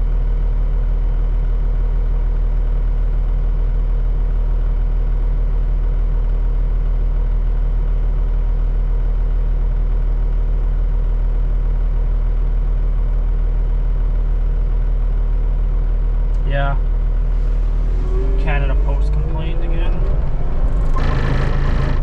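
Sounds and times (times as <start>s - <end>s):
skid steer engine running: 14.1s - 22.0s.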